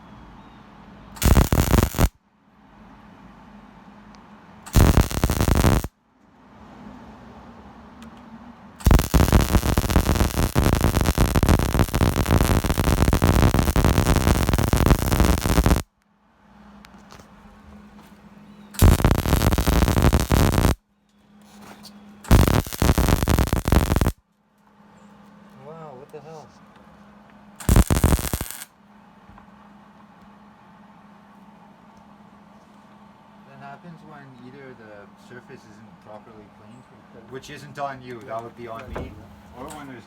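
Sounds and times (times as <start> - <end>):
welder arc crackling and sizzling: 1.2 - 2.2, 4.7 - 5.9, 8.8 - 15.9, 18.8 - 20.8, 22.3 - 24.2, 27.6 - 28.7.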